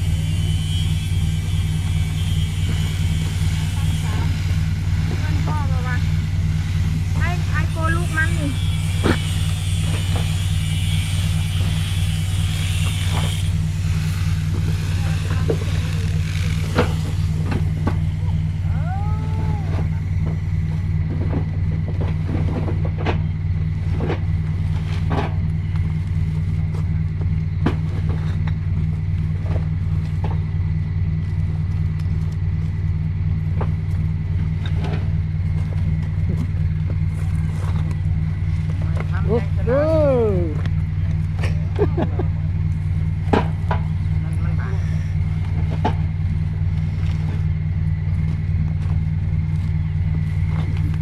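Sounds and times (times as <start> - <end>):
engine humming: 0.0 - 51.0
knocks and clatter: 8.9 - 18.4, 19.7 - 39.2, 40.6 - 44.5, 45.2 - 51.0.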